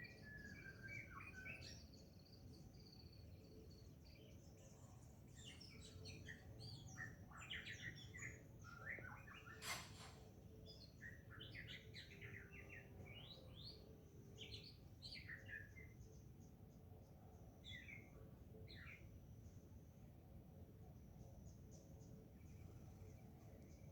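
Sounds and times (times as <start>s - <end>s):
birds twittering: 0.0s - 16.6s, 17.6s - 19.1s.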